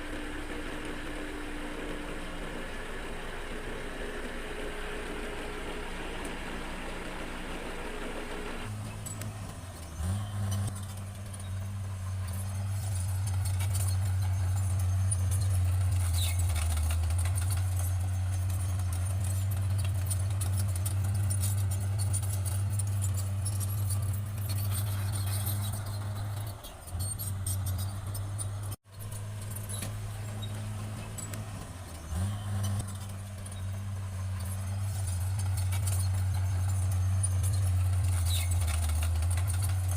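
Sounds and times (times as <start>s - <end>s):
bulldozer diesel engine running: 0.0s - 39.9s
clicks and rattles: 8.8s - 39.9s.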